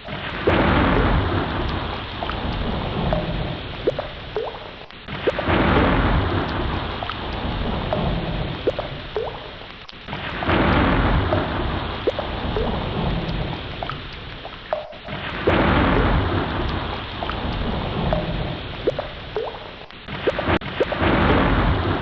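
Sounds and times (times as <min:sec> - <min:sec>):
ocean waves surging: 0:00.0 - 0:19.4.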